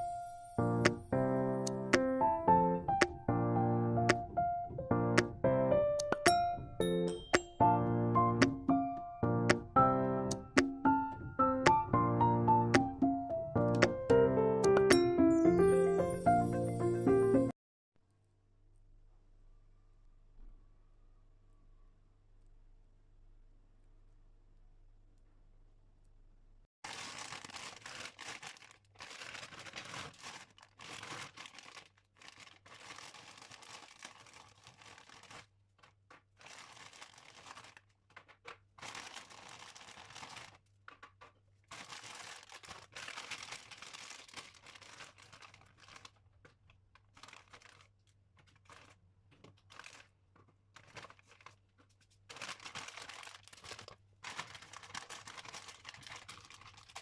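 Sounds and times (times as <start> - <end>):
dry paper scratching and crinkling: 26.8 - 57.0.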